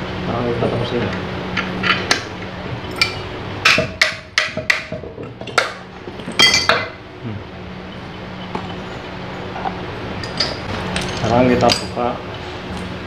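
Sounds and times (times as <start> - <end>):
metal parts clinking and knocking: 2.8 - 7.0, 10.2 - 13.0.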